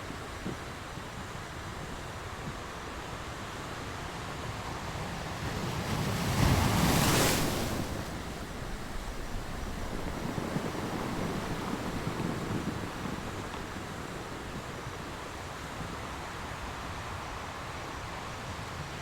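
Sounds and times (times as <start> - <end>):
sea surf washing: 0.0 - 19.0
wave breaking: 5.8 - 13.4.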